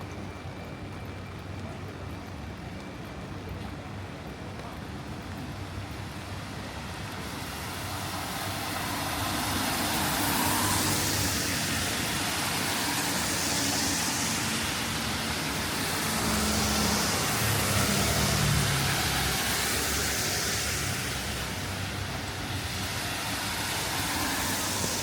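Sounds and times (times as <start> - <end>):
tyres hissing on wet road: 5.6 - 25.0
car engines passing: 6.1 - 25.0.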